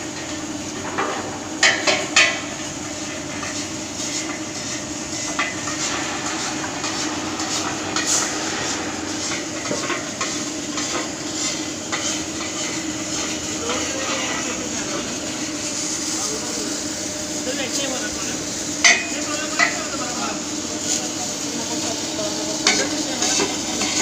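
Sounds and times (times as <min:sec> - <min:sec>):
arc welding crackling: 0:00.0 - 0:24.0.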